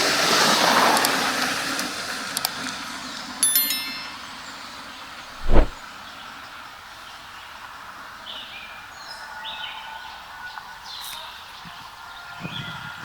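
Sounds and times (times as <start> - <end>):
sharp thump: 5.4 - 5.8.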